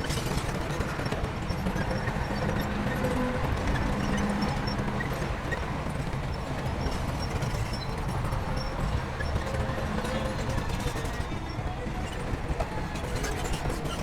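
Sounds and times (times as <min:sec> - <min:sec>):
steel tracks clattering: 0:00.0 - 0:14.0
diesel engine drone: 0:01.9 - 0:14.0.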